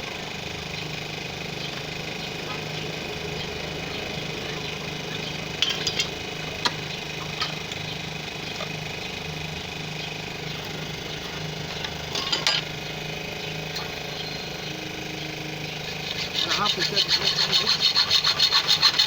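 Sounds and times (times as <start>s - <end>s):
engine-like hum: 0.0s - 19.0s
sharp clicks and knocks: 5.6s - 7.8s.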